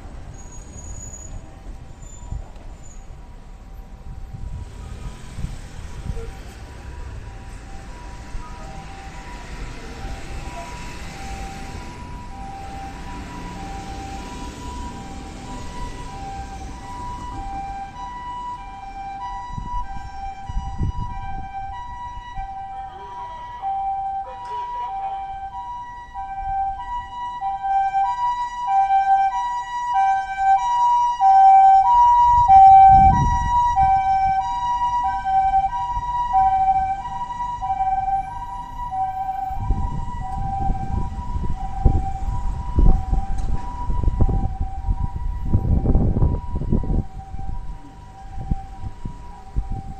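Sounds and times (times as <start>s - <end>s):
two-tone ambulance siren: 3.8s - 49.9s.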